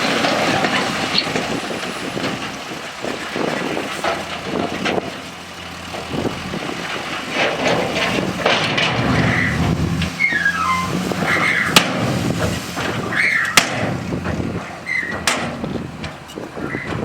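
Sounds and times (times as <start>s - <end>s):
heavy diesel machinery running: 0.0s - 17.0s
high-pitched whistling squeaks: 10.2s - 11.7s.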